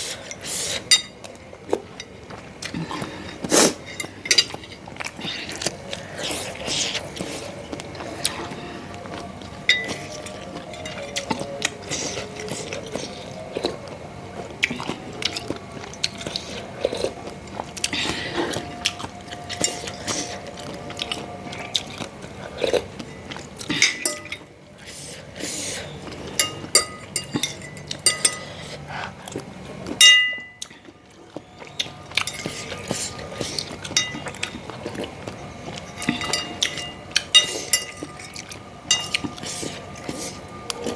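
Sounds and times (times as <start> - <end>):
person chewing and biting: 0.0 - 40.9
spoon clinking against bowl: 9.7 - 11.3, 23.7 - 24.5, 26.4 - 28.6, 30.0 - 30.7, 33.8 - 34.6, 35.9 - 39.4.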